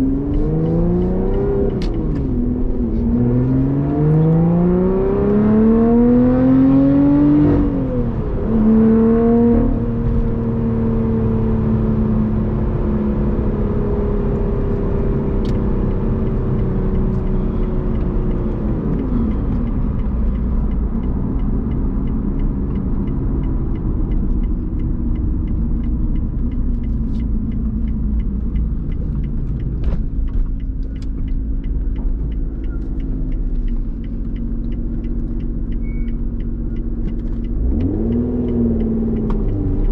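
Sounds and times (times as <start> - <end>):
car engine accelerating: 0.0 - 39.9
gear change: 14.2 - 39.9
faint regular ticking: 15.4 - 39.9.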